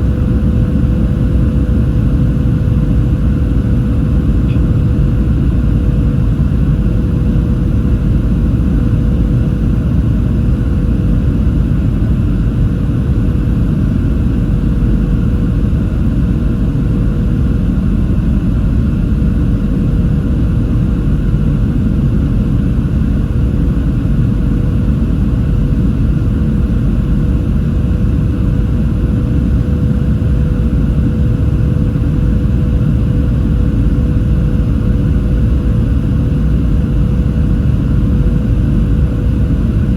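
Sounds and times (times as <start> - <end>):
aircraft engine and airflow rumble: 0.0 - 39.9
thin steady hum: 1.7 - 8.7.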